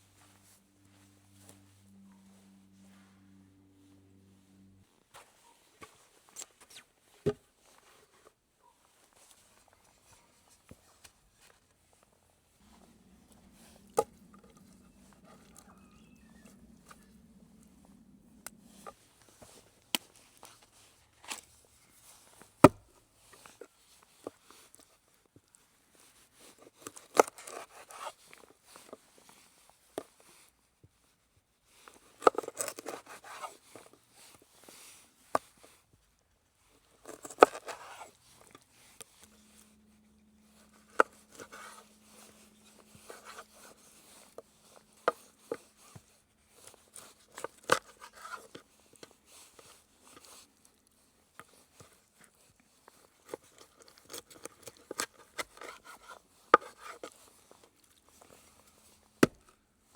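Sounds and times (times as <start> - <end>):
faint steady hum: 0.0 - 5.0, 9.7 - 23.2, 36.2 - 59.9
scraping and crunching: 12.6 - 20.6.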